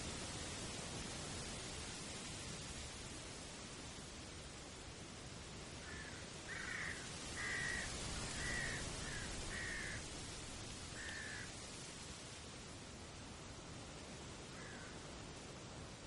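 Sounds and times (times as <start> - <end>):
steady background hiss: 0.0 - 16.0
bird calling: 5.9 - 10.1.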